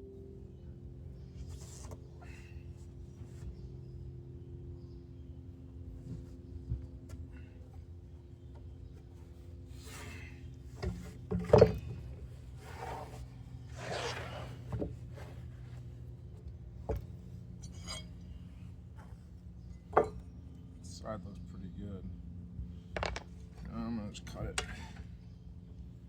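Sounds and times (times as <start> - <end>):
steady low hum: 0.0 - 26.0
boards sliding and rubbing: 12.5 - 15.9
wooden knocks: 23.0 - 23.3.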